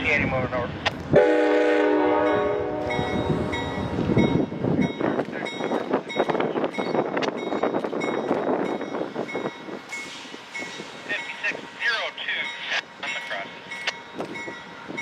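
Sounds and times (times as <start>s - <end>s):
train horn: 1.2s - 3.5s.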